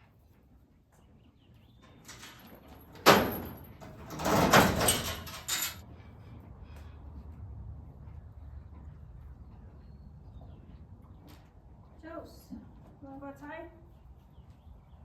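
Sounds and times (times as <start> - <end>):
door rattling and clattering: 2.0 - 5.8.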